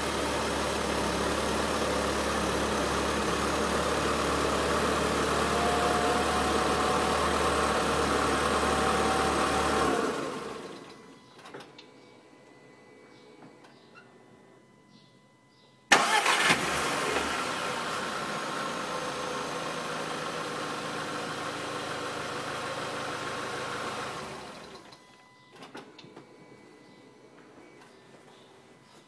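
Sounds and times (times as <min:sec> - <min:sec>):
car engine starting and idling: 0:00.0 - 0:11.1, 0:15.9 - 0:25.0.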